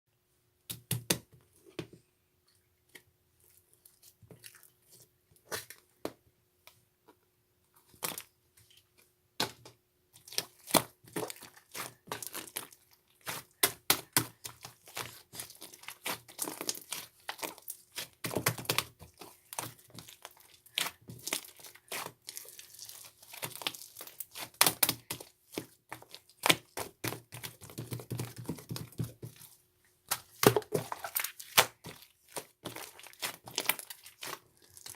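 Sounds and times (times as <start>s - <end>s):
slime crackling and popping: 10.2s - 29.2s, 30.1s - 34.9s.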